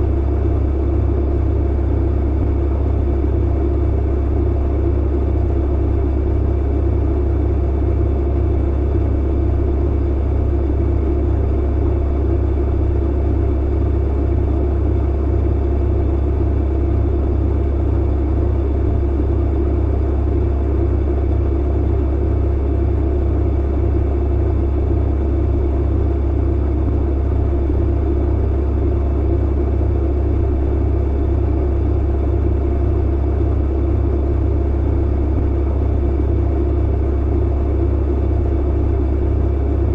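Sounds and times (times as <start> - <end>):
clothes dryer rumbling: 9.3 - 39.9.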